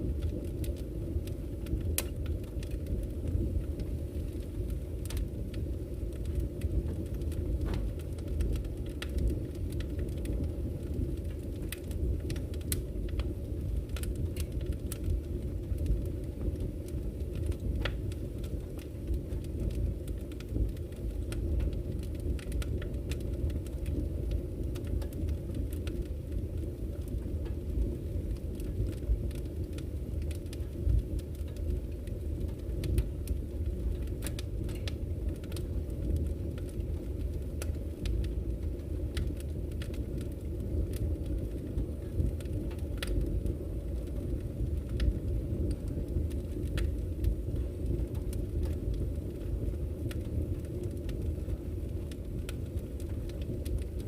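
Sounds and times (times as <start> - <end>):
logs crackling and popping: 0.0 - 54.0
low rush of flame: 0.0 - 54.0.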